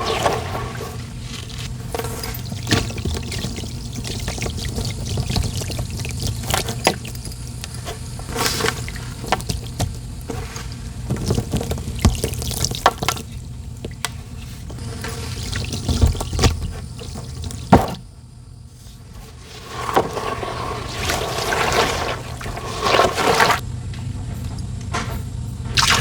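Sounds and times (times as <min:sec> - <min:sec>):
sand poured into water: 0:19.5 - 0:23.6.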